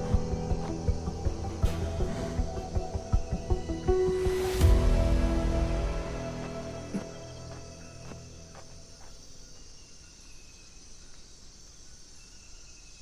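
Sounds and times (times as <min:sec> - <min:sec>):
background music: 0:00.0 - 0:09.0
crickets chirping: 0:00.0 - 0:13.0.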